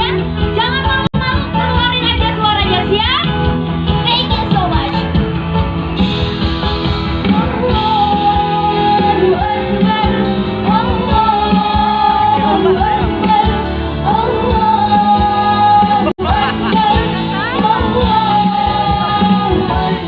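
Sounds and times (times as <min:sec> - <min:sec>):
live band music: 0:00.0 - 0:20.0.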